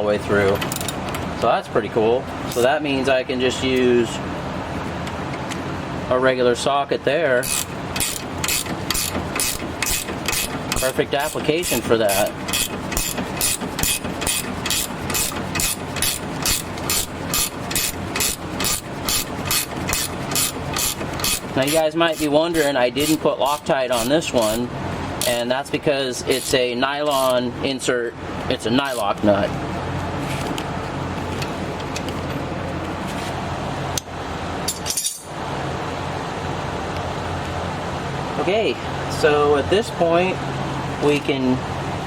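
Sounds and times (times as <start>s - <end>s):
low shop hum: 0.0s - 42.0s
ratchet clicking: 7.4s - 24.6s, 26.3s - 27.4s
hand tools clinking on steel: 34.7s - 35.3s.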